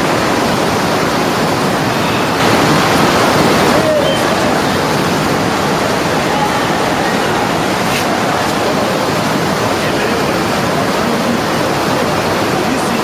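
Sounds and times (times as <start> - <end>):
waterfall rushing water: 0.0 - 13.0.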